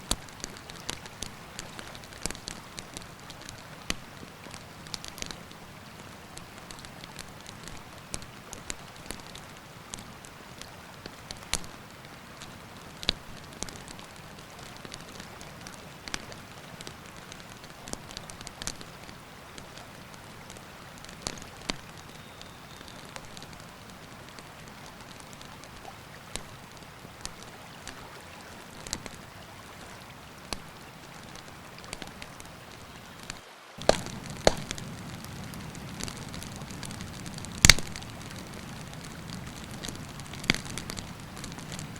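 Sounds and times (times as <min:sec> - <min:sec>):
campfire crackling and popping: 0:00.0 - 0:29.4, 0:30.1 - 0:41.9
river water rushing: 0:19.2 - 0:41.9.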